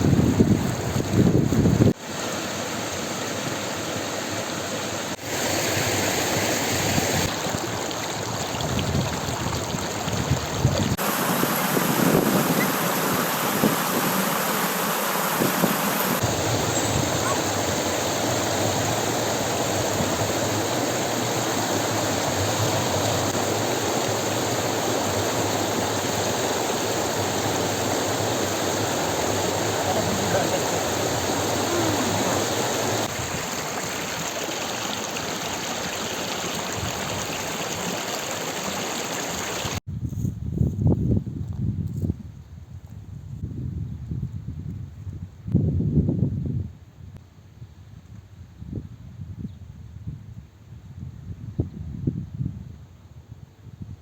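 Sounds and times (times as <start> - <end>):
running water: 0.0 - 39.8.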